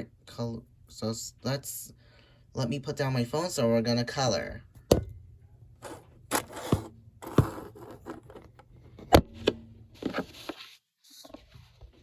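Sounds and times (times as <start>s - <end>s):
objects scraping on a table: 5.8s - 8.5s.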